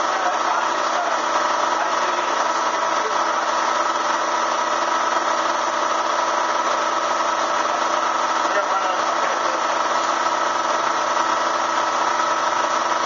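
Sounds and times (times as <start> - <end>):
vacuum motor droning: 0.0 - 13.0.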